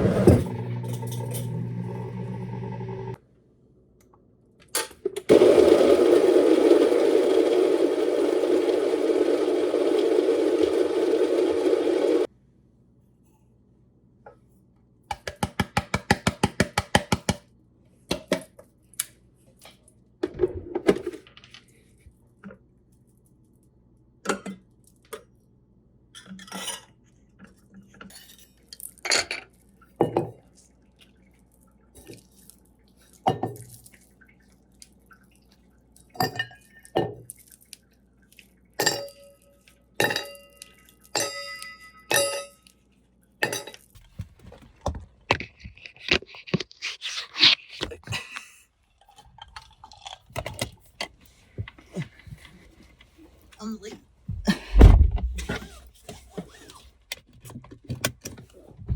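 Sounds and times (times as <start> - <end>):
dishes and cutlery clinking: 40.0 - 42.7.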